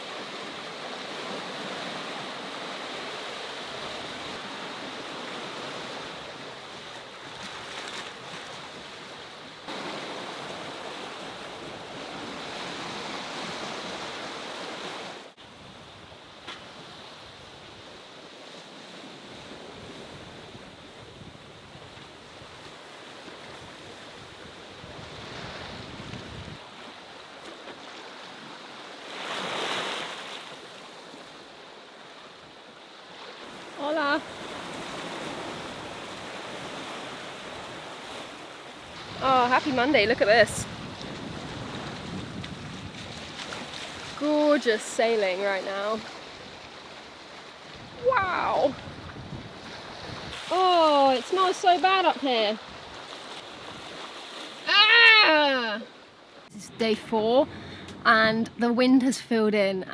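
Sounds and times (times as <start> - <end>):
waves washing against hull: 0.0 - 32.1, 33.0 - 58.3
wind buffeting the microphone: 23.5 - 26.6, 38.9 - 44.2, 47.6 - 50.5.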